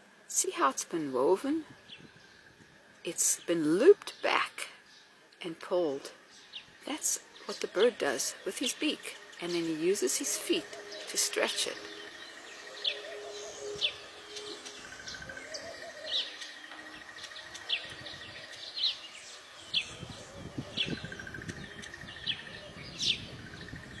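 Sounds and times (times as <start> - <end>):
small birds chirping: 0.5 - 24.0.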